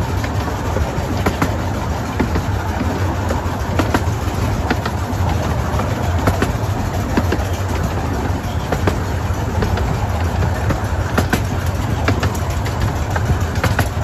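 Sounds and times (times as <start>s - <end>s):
rail joints clacking: 0.0s - 14.0s
train wheels rumbling: 0.0s - 14.0s.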